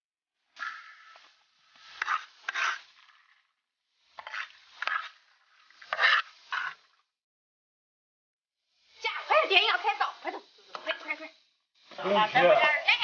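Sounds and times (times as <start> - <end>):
rough rubbing or scraping strokes: 0.5 - 7.1.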